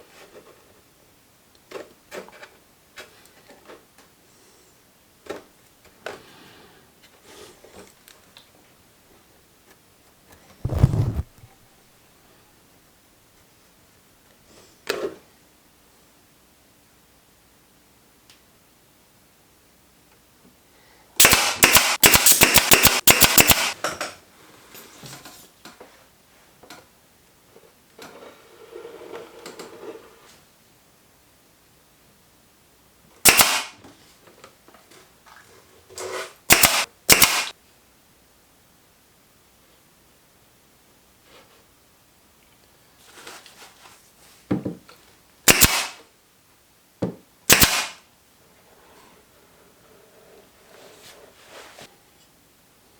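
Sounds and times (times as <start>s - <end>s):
clicks and handling noise: 10.3s - 11.5s
faint rustle: 10.4s - 11.6s
nail gun firing: 21.2s - 23.8s, 33.2s - 33.8s, 36.5s - 37.5s, 45.5s - 46.0s, 47.5s - 48.0s.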